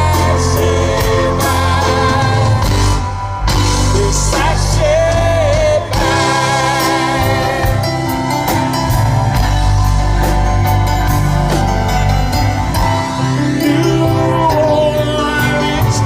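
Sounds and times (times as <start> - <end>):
drums: 0.0 - 16.0
heavy bass line: 0.0 - 16.0
wavering lead guitar notes: 0.0 - 16.0
person singing: 3.8 - 8.2, 13.4 - 16.0.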